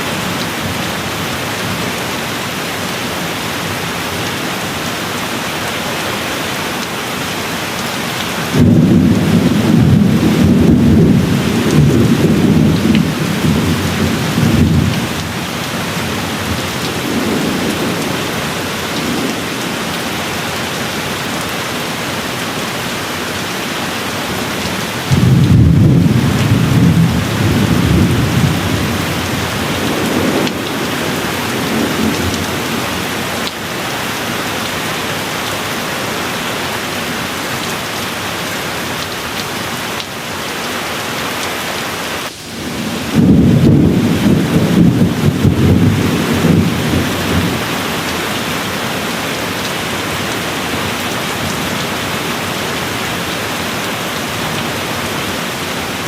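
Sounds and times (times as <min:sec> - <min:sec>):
steady rain: 0:00.0 - 0:56.0
rolling thunder: 0:08.5 - 0:21.1, 0:25.0 - 0:33.3, 0:42.2 - 0:47.9.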